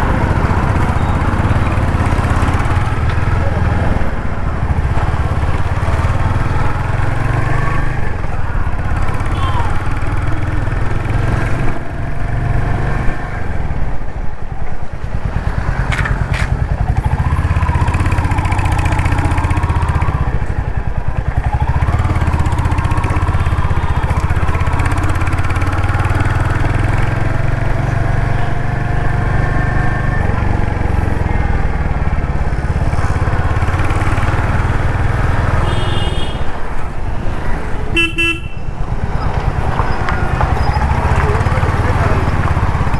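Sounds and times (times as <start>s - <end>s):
motorcycle engine thumping: 15.1s - 17.3s.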